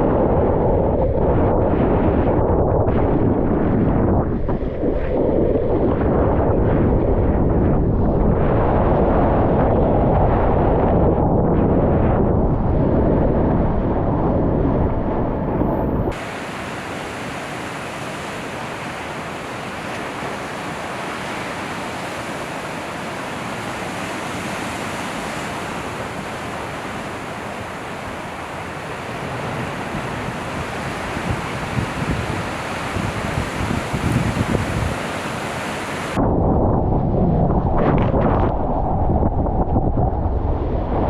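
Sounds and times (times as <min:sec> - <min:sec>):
wind rumble on microphone: 0:00.0 - 0:41.0
ocean surf: 0:12.7 - 0:36.2.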